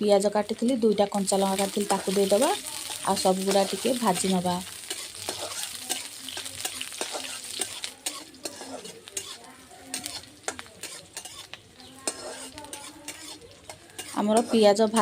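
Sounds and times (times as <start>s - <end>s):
onions sizzling in oil: 0.0s - 15.0s
spoon scraping a pan: 1.2s - 15.0s.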